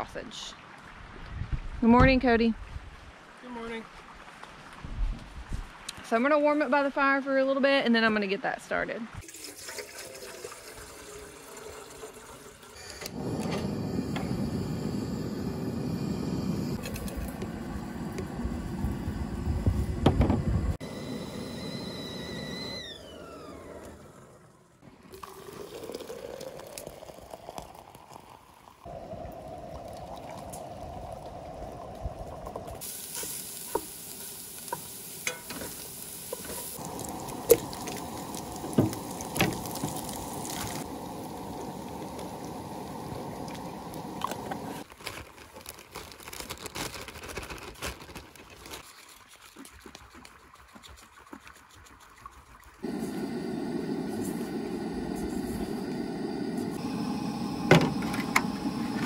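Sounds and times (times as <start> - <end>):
sausage sizzling in a pot: 32.7 - 44.9.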